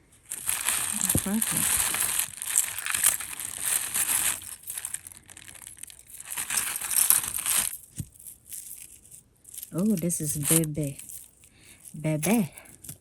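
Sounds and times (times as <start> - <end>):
packaging crinkling: 0.2 - 8.0.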